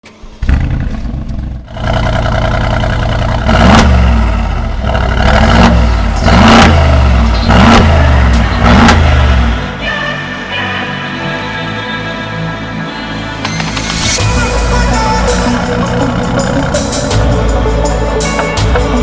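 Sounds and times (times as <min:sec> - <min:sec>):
car engine idling: 0:00.3 - 0:09.8, 0:14.2 - 0:17.8
engine throttle blips: 0:00.4 - 0:09.8, 0:14.2 - 0:17.6.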